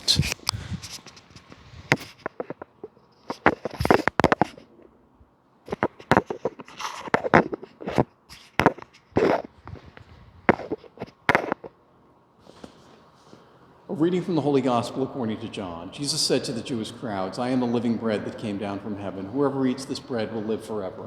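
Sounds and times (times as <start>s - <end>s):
sharp uneven clicks and knocks: 0.8s - 4.9s, 5.7s - 11.7s.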